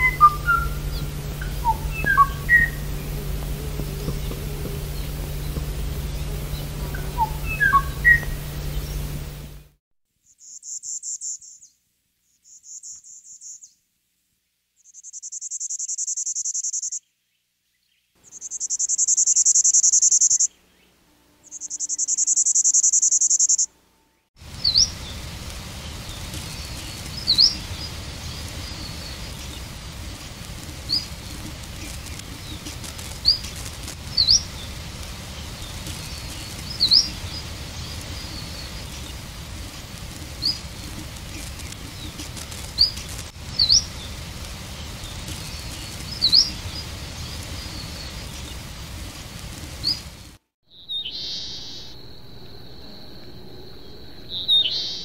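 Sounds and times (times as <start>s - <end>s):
sharp upward bird chirps: 0.0s - 3.0s, 4.9s - 9.2s, 18.2s - 20.5s, 21.4s - 23.7s, 50.6s - 55.0s
high buzzy bird trills: 0.0s - 9.7s, 18.2s - 23.7s, 50.7s - 55.0s
recording hiss: 0.0s - 55.0s.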